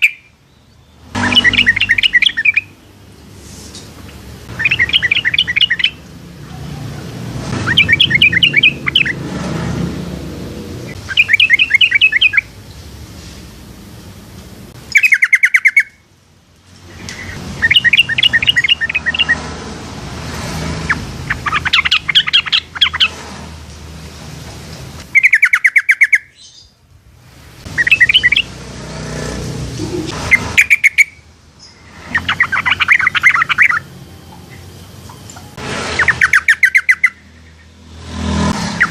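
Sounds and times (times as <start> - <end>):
bird singing bubbly phrases: 0.0 - 0.6, 1.2 - 2.7, 4.5 - 6.0, 7.6 - 9.2, 10.9 - 12.6, 14.9 - 16.0, 17.2 - 19.6, 20.8 - 23.1, 25.1 - 26.7, 27.7 - 28.5, 29.8 - 35.4.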